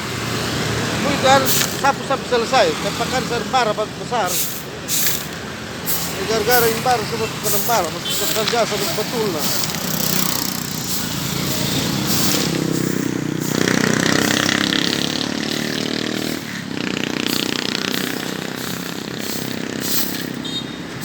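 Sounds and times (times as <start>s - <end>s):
rough scraping hiss: 4.2s - 20.4s
motorbike engine passing: 5.3s - 21.0s.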